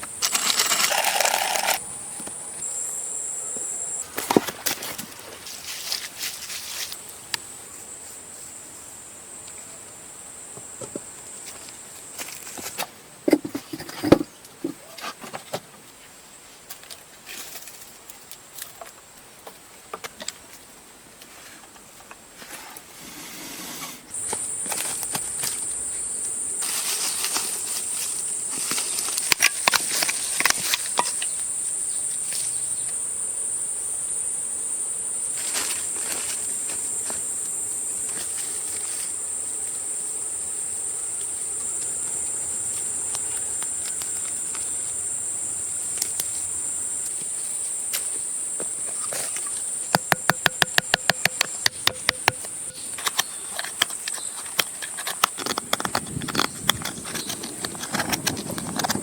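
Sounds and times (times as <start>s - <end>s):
high-pitched insect trill: 0.0s - 5.0s, 24.1s - 59.0s
knocks and rustles: 12.4s - 15.7s, 48.6s - 59.0s.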